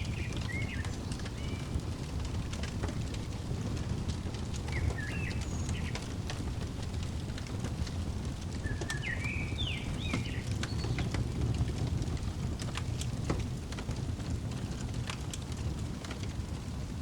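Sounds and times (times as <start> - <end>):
songbird whistling: 0.0 - 1.6, 4.7 - 6.0, 8.6 - 11.0
fireplace crackling: 0.0 - 17.0.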